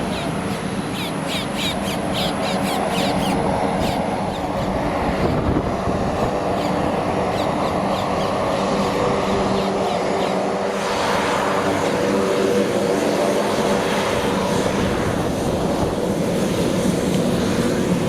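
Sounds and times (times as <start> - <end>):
birds rapid short calls: 0.0 - 4.7, 6.2 - 10.5
aircraft engine running: 0.0 - 18.0.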